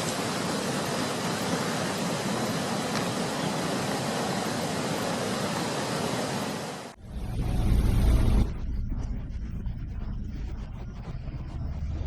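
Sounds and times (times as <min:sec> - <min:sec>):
rough sea: 0:00.0 - 0:07.0
wind: 0:00.0 - 0:12.0
loud deep rumble: 0:07.0 - 0:12.0.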